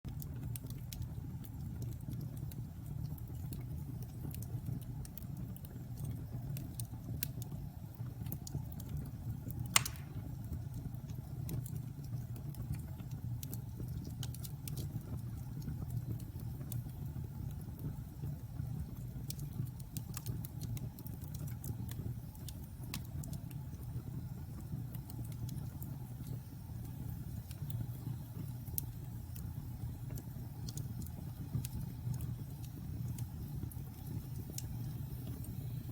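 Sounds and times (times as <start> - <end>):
low fire rumble: 0.1 - 35.9
wood fire crackling: 0.1 - 35.9
loud sharp pop: 9.8 - 10.2.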